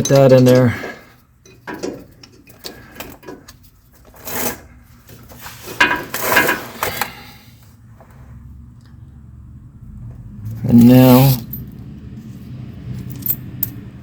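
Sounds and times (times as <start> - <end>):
metal clattering: 0.0 - 3.6
metal parts clicking and knocking: 0.0 - 3.6, 13.0 - 13.8.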